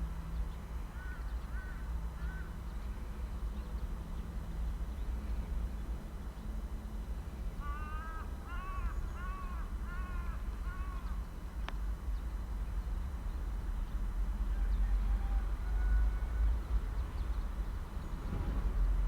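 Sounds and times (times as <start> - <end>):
crow cawing: 1.0 - 2.5, 7.6 - 11.1.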